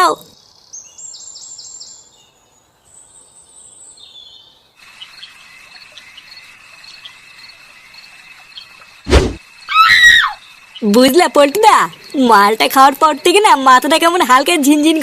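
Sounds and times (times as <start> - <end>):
crickets chirring: 4.2 - 15.0.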